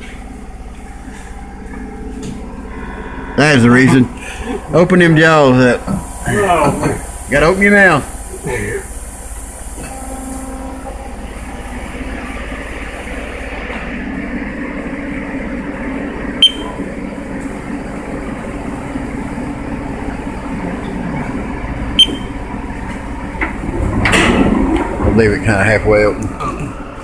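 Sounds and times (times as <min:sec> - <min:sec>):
lathe machining noise: 0:00.0 - 0:27.0.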